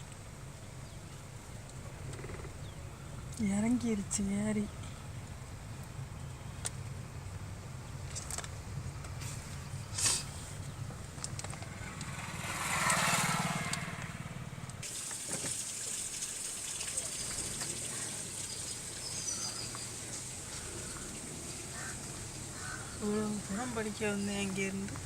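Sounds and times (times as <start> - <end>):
engine running: 7.0 - 14.9.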